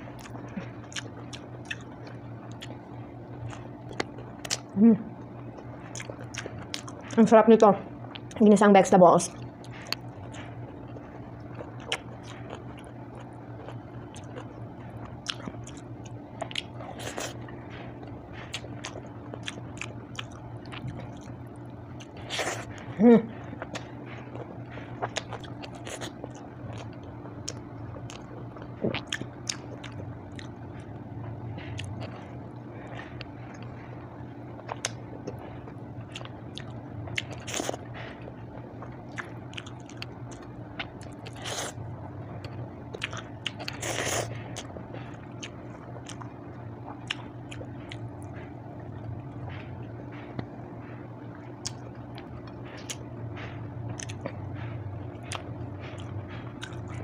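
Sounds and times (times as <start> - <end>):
person chewing: 0.0 - 7.3, 9.3 - 31.0, 31.6 - 50.6, 51.3 - 57.0
steady low hum: 0.0 - 57.0
food crunching: 0.1 - 2.8, 3.4 - 7.2, 9.3 - 31.0, 34.5 - 41.8, 42.4 - 49.7, 53.8 - 54.4, 55.1 - 57.0.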